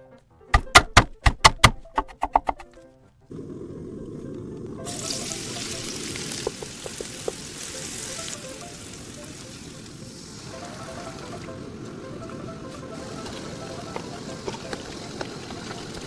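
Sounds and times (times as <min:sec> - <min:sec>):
food sizzling in a hot pan: 0:04.8 - 0:11.6.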